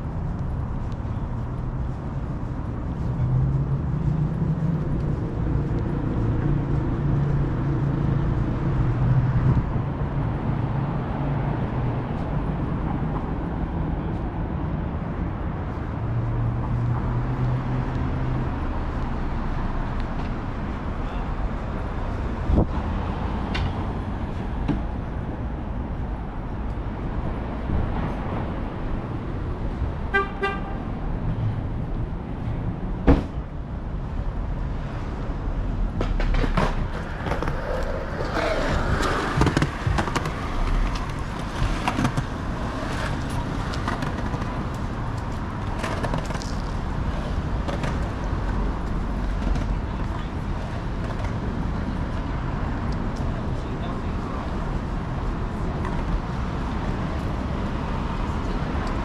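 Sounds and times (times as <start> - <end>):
traffic noise: 0.0 - 59.0
vehicle engine humming: 36.5 - 41.5.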